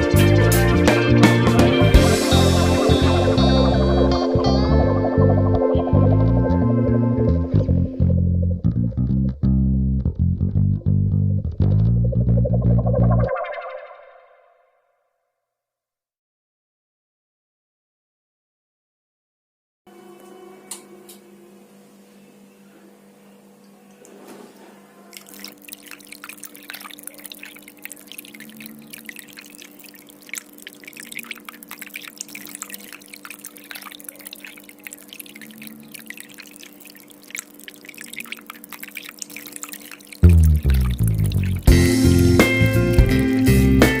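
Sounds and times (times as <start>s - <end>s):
fountain water trickling and dripping: 0.0s - 4.2s, 25.1s - 44.0s.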